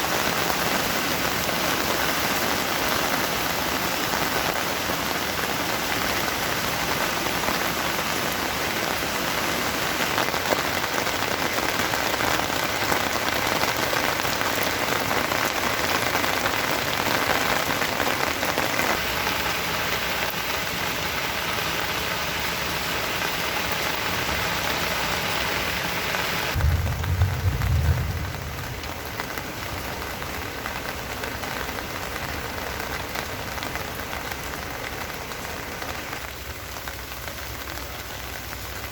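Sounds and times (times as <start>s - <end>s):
steady rain falling: 0.0s - 38.9s
short low rumble: 26.6s - 30.0s.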